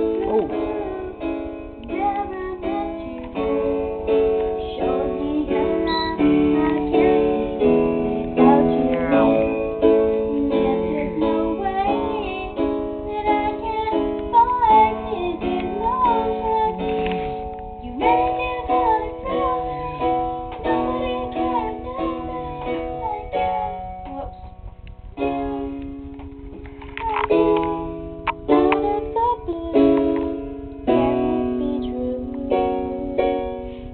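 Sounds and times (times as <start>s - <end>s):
girl singing: 0.0s - 24.6s, 25.2s - 33.8s.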